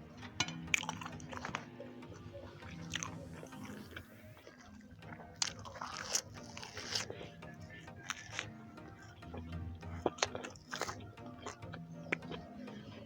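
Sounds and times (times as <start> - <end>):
person chewing food: 0.0 - 13.0
soft background music: 0.0 - 13.0.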